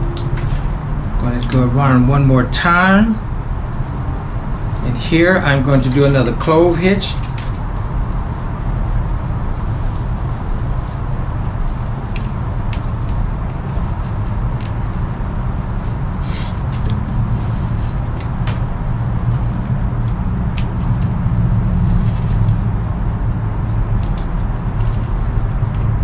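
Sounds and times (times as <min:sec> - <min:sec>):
low background rumble: 0:00.0 - 0:26.0
clicks of cord and sticks handled: 0:05.8 - 0:08.2, 0:16.3 - 0:17.1.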